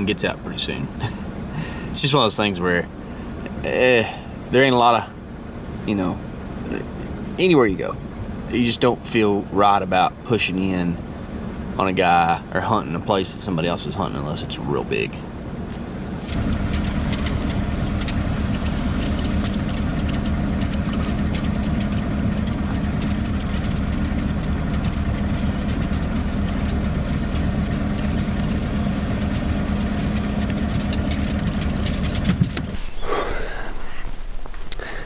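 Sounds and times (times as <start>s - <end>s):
vehicle engine running: 16.3s - 35.0s
faint rattles: 32.7s - 35.0s.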